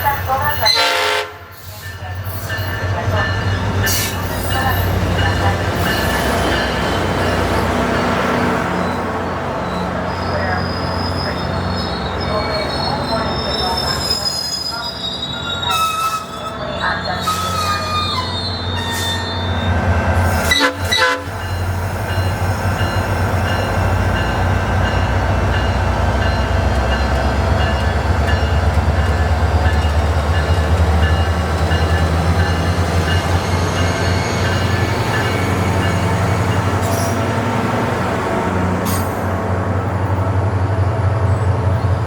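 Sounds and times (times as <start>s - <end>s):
diesel locomotive rumble: 0.0s - 42.0s
train wheel squeal: 8.8s - 37.3s.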